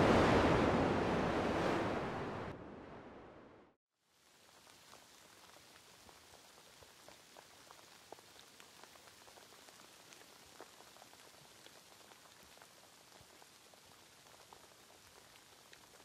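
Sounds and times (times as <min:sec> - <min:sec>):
raindrops ticking: 0:04.3 - 0:16.0.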